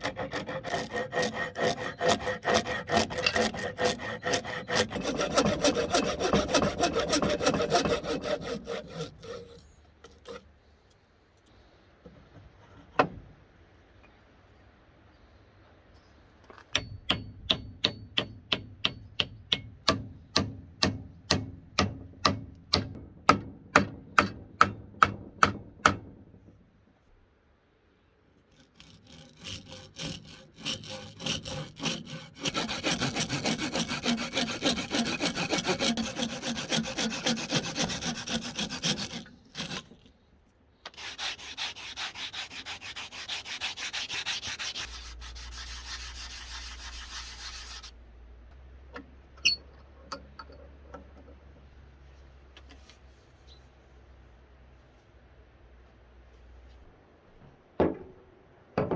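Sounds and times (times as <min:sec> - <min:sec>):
hand tool rubbing wood: 0:00.0 - 0:10.4, 0:28.6 - 0:40.0, 0:41.0 - 0:48.0.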